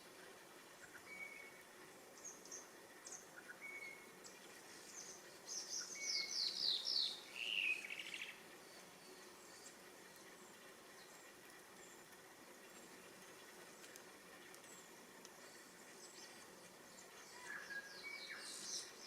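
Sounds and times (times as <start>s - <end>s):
high downward-sliding bird calls: 2.2s - 9.8s, 14.5s - 19.0s.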